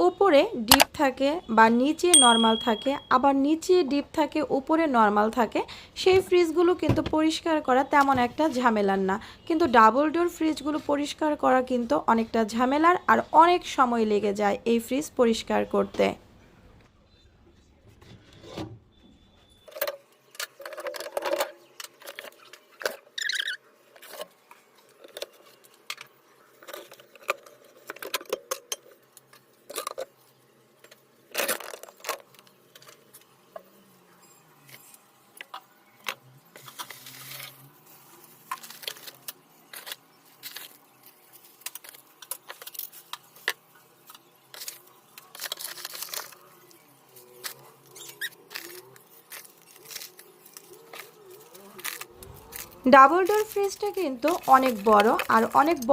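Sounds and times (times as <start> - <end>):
plastic containers and jars clattering: 19.6 - 24.4, 47.4 - 55.9
rustling: 44.5 - 55.9.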